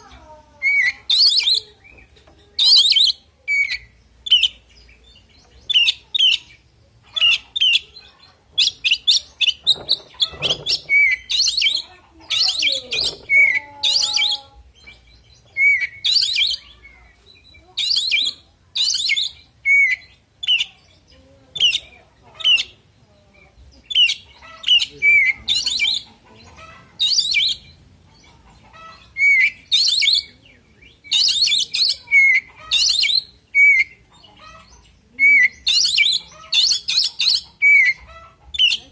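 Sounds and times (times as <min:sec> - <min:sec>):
bird singing whistled phrases: 0:29.2 - 0:30.3, 0:35.2 - 0:38.0.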